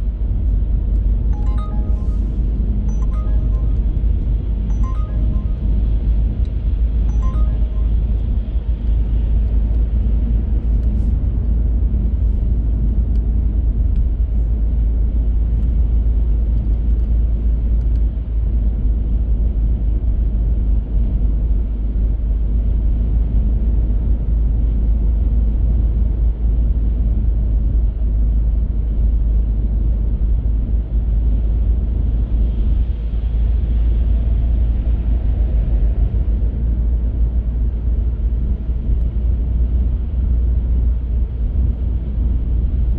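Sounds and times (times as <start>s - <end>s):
car engine hum: 33.7s - 42.9s.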